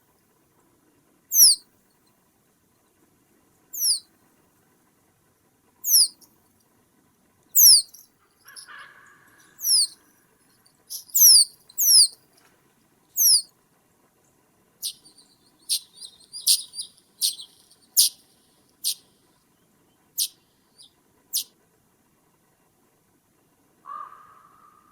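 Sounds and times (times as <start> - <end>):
small bird calling: 1.3 - 1.6, 3.8 - 4.0, 5.8 - 6.2, 7.6 - 10.1, 10.9 - 12.2, 13.2 - 13.5, 14.8 - 19.1, 20.2 - 21.5, 23.9 - 24.9
bird ticking chips: 3.8 - 4.0, 7.6 - 8.8, 9.4 - 10.0, 10.9 - 12.1, 13.2 - 13.4, 14.8 - 18.2, 18.8 - 19.0.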